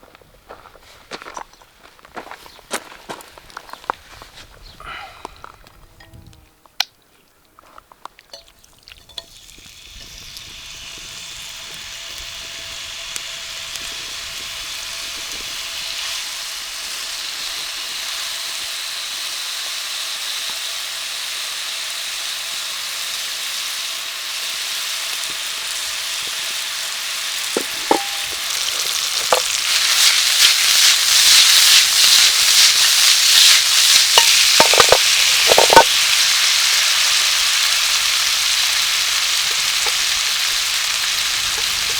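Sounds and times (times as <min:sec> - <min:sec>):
food sizzling in frying pan: 0:09.0 - 0:41.9.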